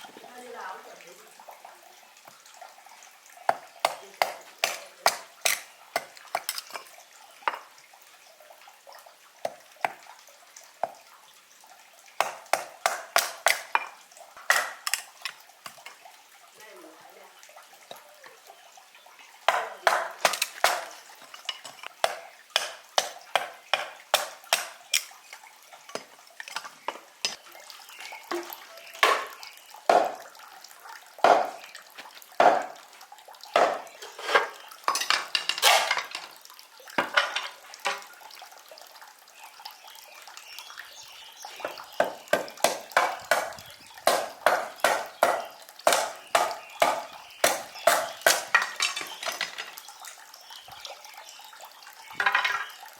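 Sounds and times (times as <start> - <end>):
hand tool striking wood: 12.2 - 15.1, 19.5 - 25.1, 28.4 - 30.2, 31.2 - 31.6, 32.4 - 32.8, 33.6 - 34.6, 42.0 - 49.6.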